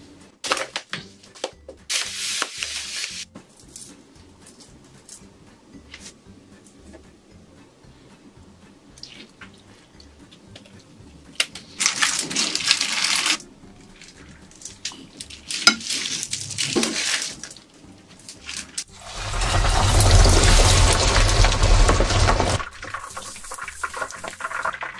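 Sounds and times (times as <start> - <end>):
crackling or splashing bursts: 11.8 - 13.4, 15.2 - 17.6, 18.4 - 24.9.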